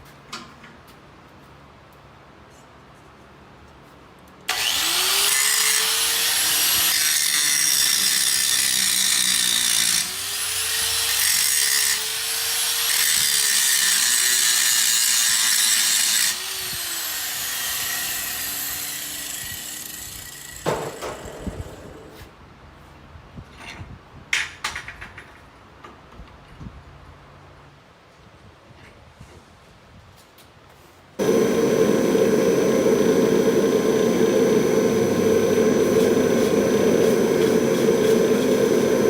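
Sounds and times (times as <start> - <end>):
power tool grinding steel: 4.5 - 20.6, 31.2 - 39.0.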